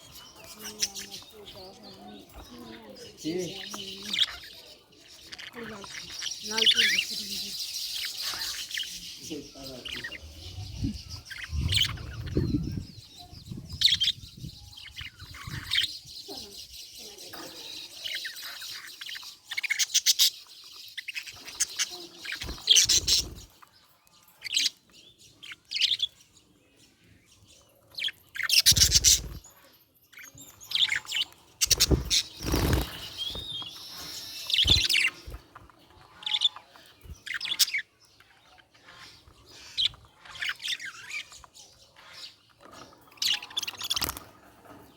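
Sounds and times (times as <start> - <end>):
budgerigar chirping: 30.8 - 35.4.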